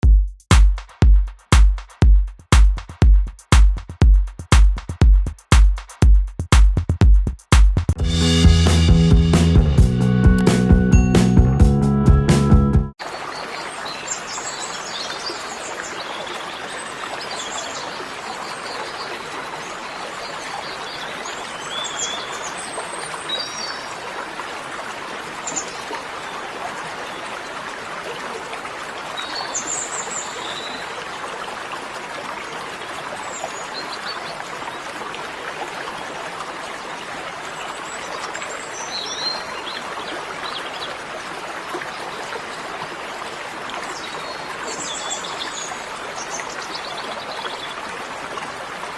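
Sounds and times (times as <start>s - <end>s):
stream rushing: 13.0s - 48.9s.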